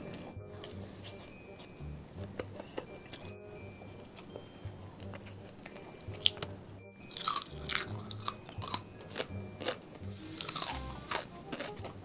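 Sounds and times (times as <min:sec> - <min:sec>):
background music: 0:00.0 - 0:12.0
crunchy food chewing: 0:03.9 - 0:12.0.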